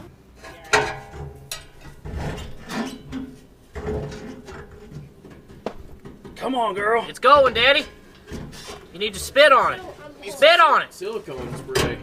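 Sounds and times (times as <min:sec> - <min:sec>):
pry bar clunking and scraping: 0:00.4 - 0:06.5, 0:07.2 - 0:08.9
metal knocks: 0:00.5 - 0:06.5, 0:07.2 - 0:08.6.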